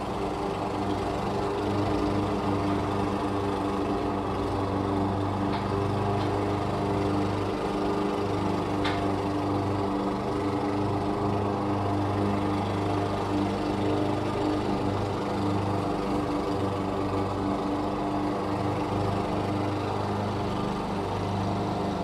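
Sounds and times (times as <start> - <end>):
lawn mower engine running: 0.0 - 22.0.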